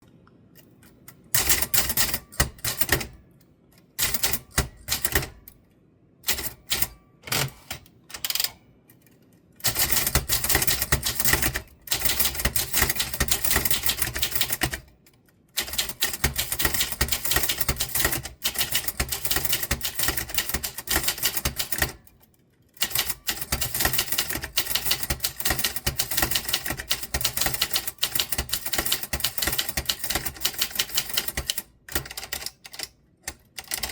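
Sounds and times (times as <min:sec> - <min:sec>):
typewriter keys clacking: 0:04.0 - 0:05.5, 0:06.3 - 0:08.6, 0:09.6 - 0:14.9, 0:15.6 - 0:22.2, 0:22.8 - 0:33.9.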